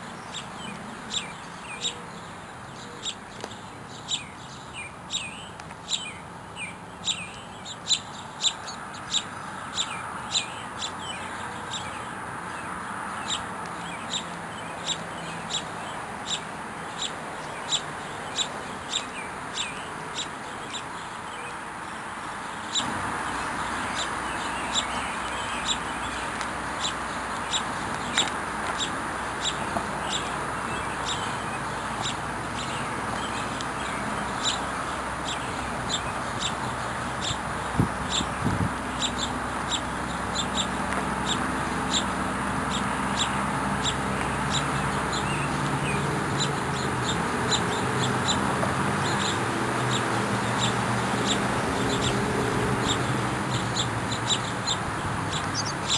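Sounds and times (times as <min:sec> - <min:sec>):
high bird chirps: 0:52.8 - 0:55.9.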